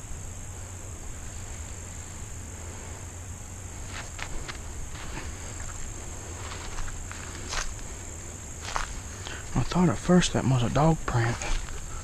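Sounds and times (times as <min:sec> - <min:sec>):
insects droning: 0:00.0 - 0:12.0
footsteps in leaf litter: 0:03.8 - 0:12.0.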